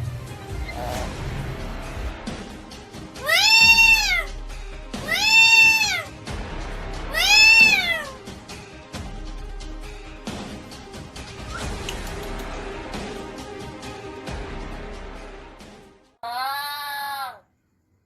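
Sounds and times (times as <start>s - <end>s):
parrot calling: 0.6s - 1.2s, 3.2s - 4.3s, 5.0s - 6.1s, 7.1s - 8.2s.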